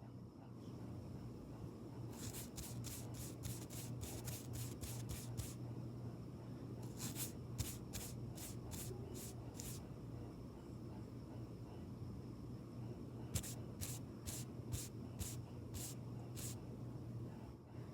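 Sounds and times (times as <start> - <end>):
makeup brush swishes: 2.2 - 5.6, 6.9 - 9.8.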